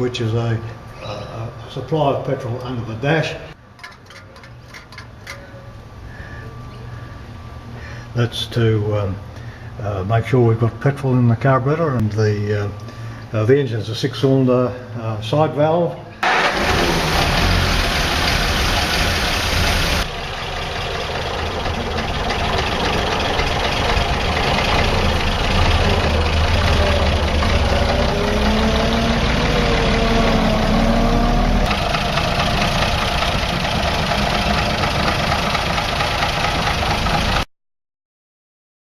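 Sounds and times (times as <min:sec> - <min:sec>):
truck engine idling: 0:16.2 - 0:37.4.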